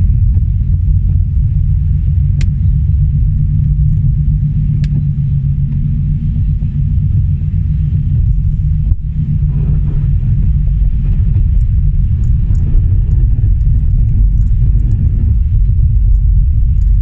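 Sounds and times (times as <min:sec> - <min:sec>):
car road and engine rumble: 0:00.0 - 0:17.0
sharp clicks: 0:11.1 - 0:17.0.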